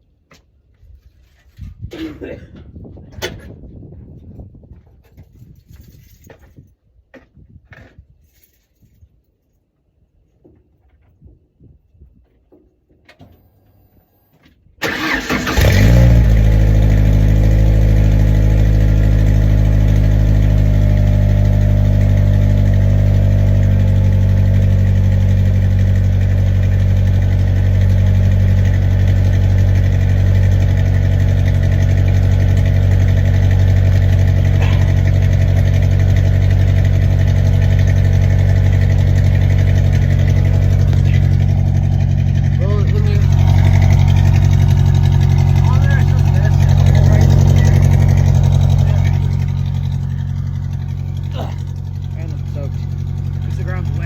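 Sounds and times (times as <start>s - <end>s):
pickup engine starting and idling: 14.8s - 54.0s.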